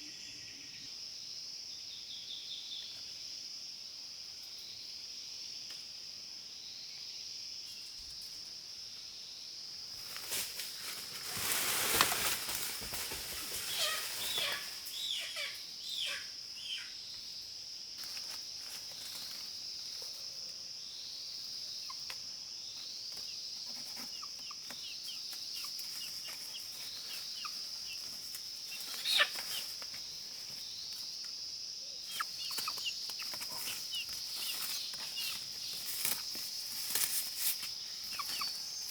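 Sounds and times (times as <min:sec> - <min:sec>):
rustling: 0:10.0 - 0:14.7, 0:32.1 - 0:38.9.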